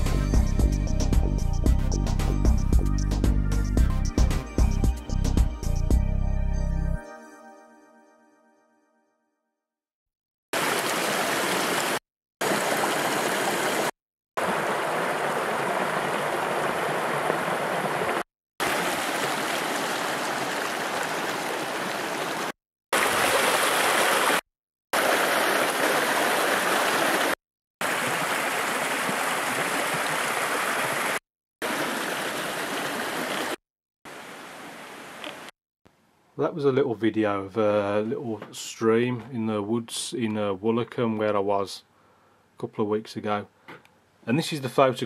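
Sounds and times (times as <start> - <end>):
stream flowing: 10.6 - 24.4, 25.0 - 35.5.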